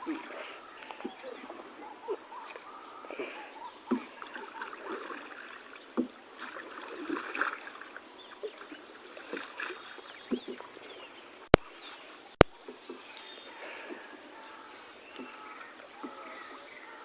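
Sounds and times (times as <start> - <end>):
paddle water splashes: 0.0 - 17.0
soft knocks on boat: 6.0 - 6.2.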